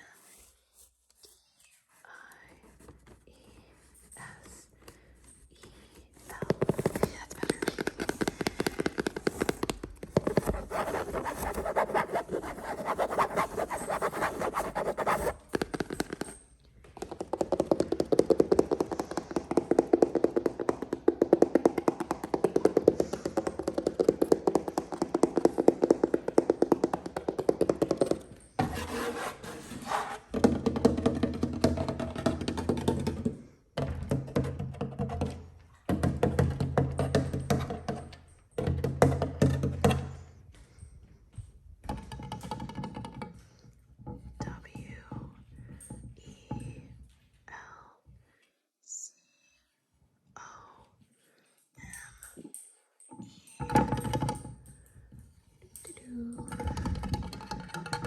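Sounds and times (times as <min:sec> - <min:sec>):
scratching on objects: 0:00.1 - 0:16.5, 0:17.1 - 0:30.4
rapid tapping on objects: 0:06.2 - 0:29.0.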